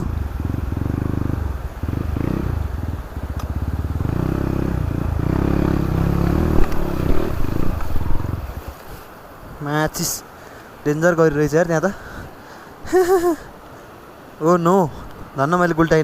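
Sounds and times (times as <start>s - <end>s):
dirt bike engine labouring: 0.0s - 8.8s.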